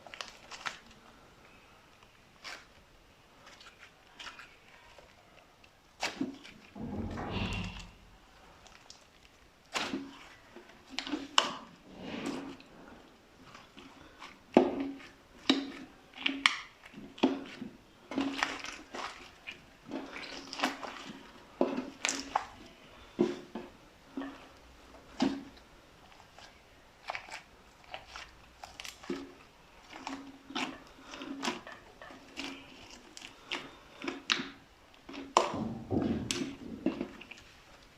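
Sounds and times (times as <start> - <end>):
slime squelching and popping: 13.4 - 23.7, 25.1 - 37.9.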